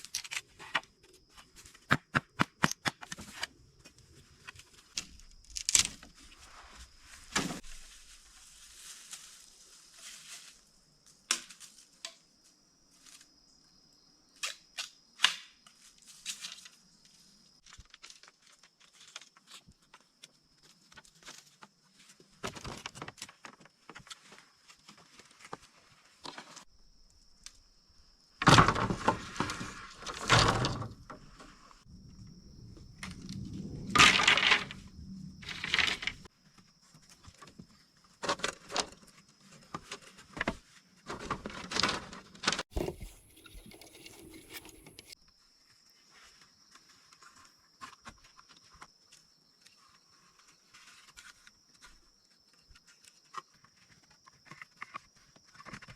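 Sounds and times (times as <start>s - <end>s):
rustling and knocking: 42.7s - 45.2s.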